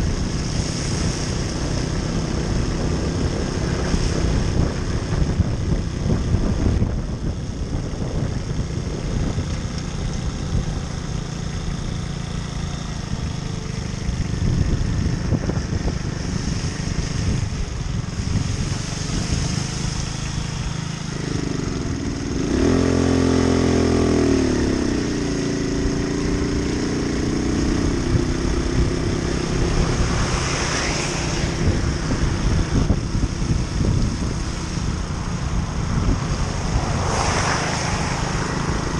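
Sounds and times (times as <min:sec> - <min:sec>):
moped engine running: 0:00.0 - 0:38.9
steady rushing noise: 0:00.0 - 0:38.9.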